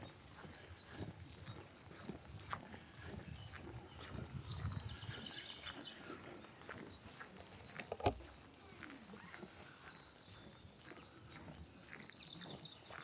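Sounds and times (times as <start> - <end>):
footsteps on a path: 0.0 - 13.0
songbirds chirping: 0.0 - 13.0
sharp clicks: 7.7 - 8.4.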